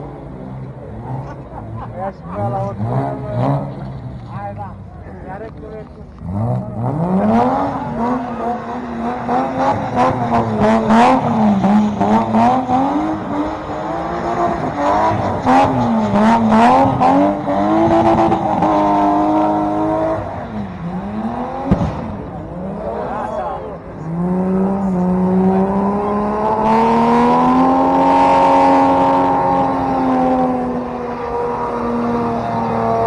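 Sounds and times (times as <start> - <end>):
car engine revving: 0.0 - 33.0
exhaust cracks: 20.9 - 23.0.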